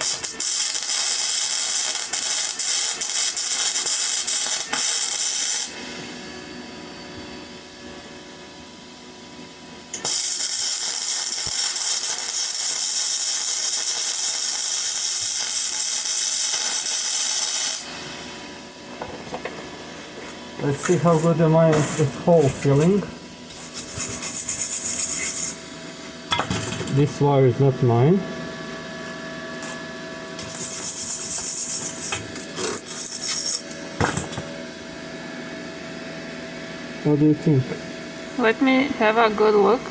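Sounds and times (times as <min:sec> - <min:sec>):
welding arc crackling hiss: 0:00.0 - 0:05.8, 0:09.9 - 0:18.5, 0:20.6 - 0:27.2, 0:29.6 - 0:34.4.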